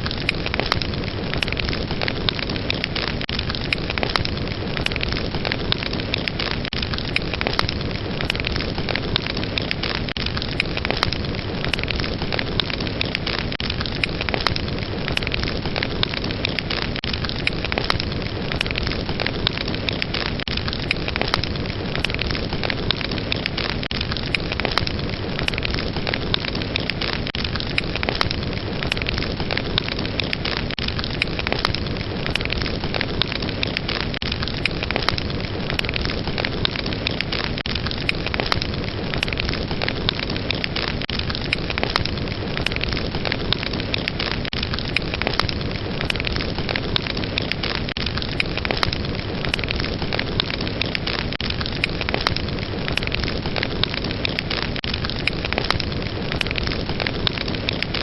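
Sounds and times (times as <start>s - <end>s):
fire crackling and popping: 0.0s - 58.0s
wood fire burning: 0.0s - 58.0s.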